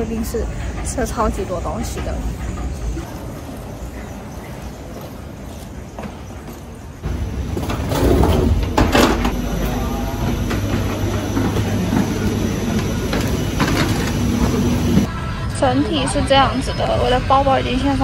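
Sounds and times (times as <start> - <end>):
aircraft cabin ventilation hum: 7.0 - 15.1.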